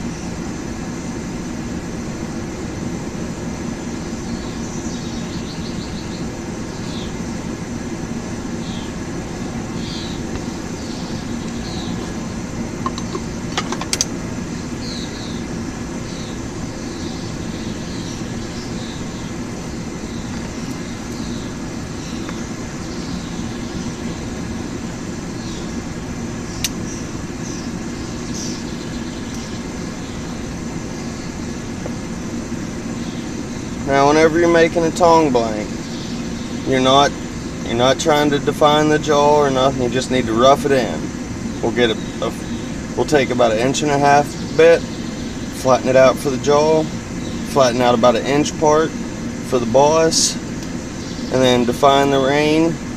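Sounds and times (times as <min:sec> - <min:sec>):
sharp clicks: 0:26.6 - 0:26.8.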